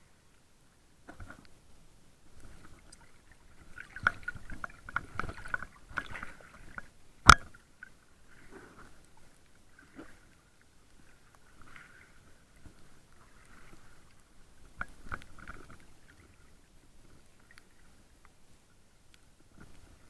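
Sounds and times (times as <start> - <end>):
water sloshing: 2.3 - 17.9.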